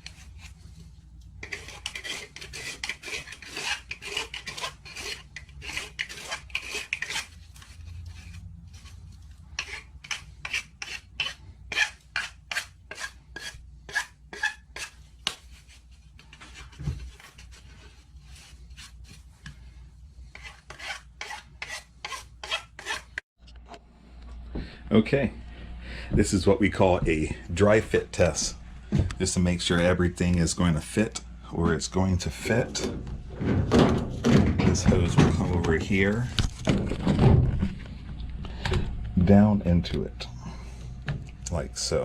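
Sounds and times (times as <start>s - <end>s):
hand tool rasping a pipe: 1.4s - 8.4s, 9.5s - 15.0s, 20.3s - 23.2s.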